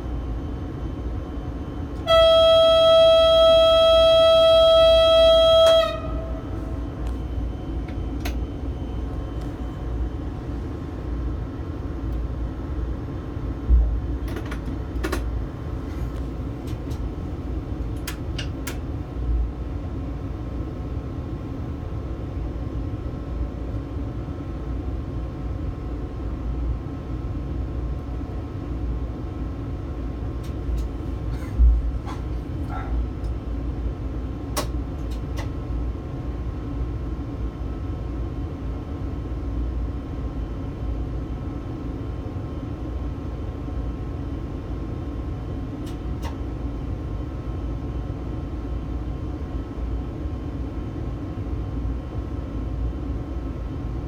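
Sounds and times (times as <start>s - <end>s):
train cab hum and rumble: 0.0s - 54.0s
train horn: 2.0s - 7.2s.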